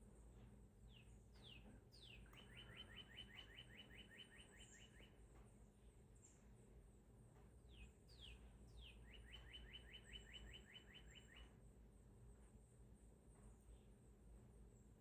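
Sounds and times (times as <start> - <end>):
songbird whistles and trill: 0.9 - 5.2, 7.7 - 11.6.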